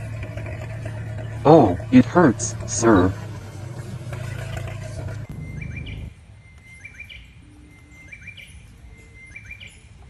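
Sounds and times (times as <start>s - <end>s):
low rumble: 0.0s - 6.2s
bird chirping call: 4.1s - 10.0s.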